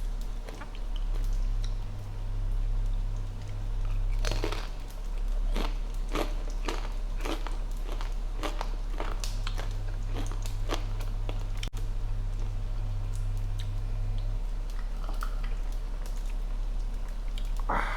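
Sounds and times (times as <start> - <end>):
steady low hum: 0.0 - 17.9
taco shells crunching: 3.4 - 12.6.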